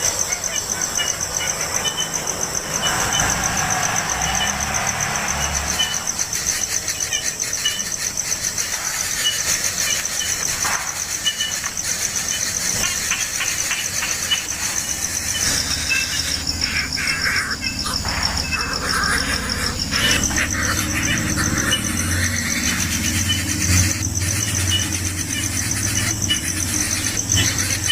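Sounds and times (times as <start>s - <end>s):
insect trill: 0.0s - 27.9s
squealing animal calls: 14.2s - 27.9s.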